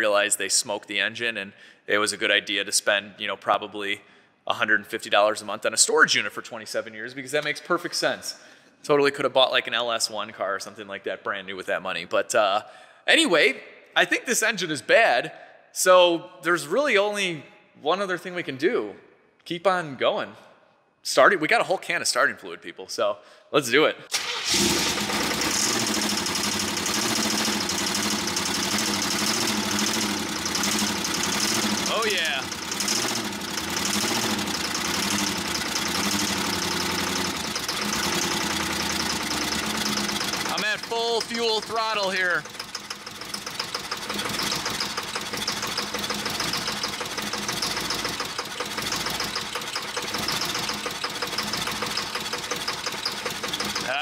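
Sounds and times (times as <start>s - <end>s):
engine running rough and clanking: 24.4s - 54.0s.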